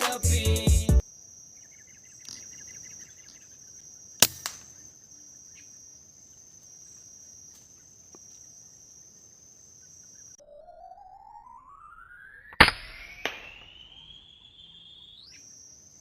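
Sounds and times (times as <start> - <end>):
insects droning: 0.0 - 16.0
air rifle shot: 12.6 - 13.7.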